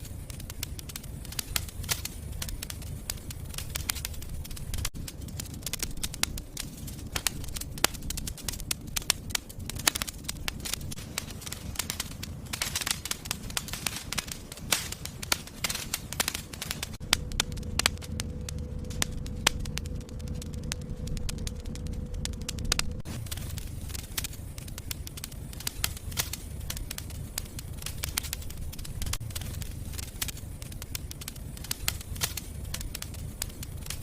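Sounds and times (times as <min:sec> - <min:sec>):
low rumble of flames: 0:00.0 - 0:34.0
wood fire crackling and popping: 0:00.0 - 0:34.0.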